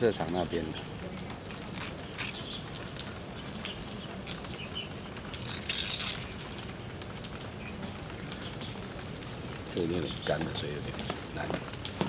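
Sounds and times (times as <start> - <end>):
dry palm leaves rustling: 0.3 - 2.9, 4.0 - 11.4.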